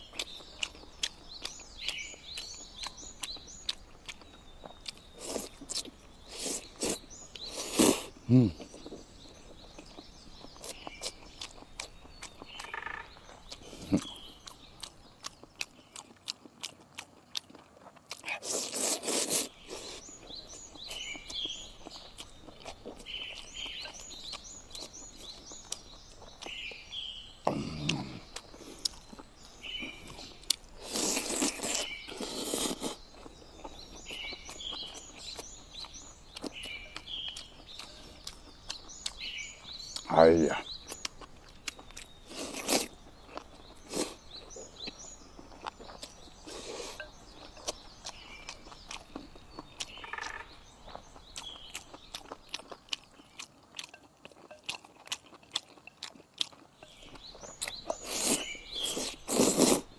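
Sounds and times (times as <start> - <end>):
bird chirping: 0.0 - 16.2, 18.4 - 59.9
people crunching food: 0.0 - 59.9
slurping: 0.2 - 12.6, 13.4 - 15.4, 18.1 - 26.7, 27.4 - 50.0, 51.0 - 59.9.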